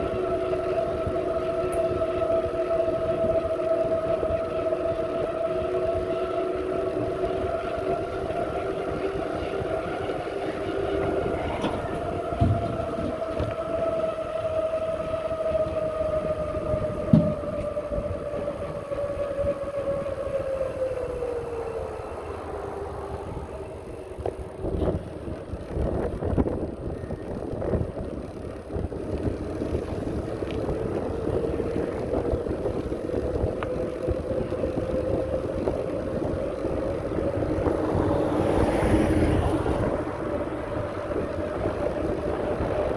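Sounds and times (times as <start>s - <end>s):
bicycle whine: 0.0s - 42.9s
wind rumble on microphone: 0.0s - 42.9s
sharp knocks from bumps: 17.1s - 17.7s.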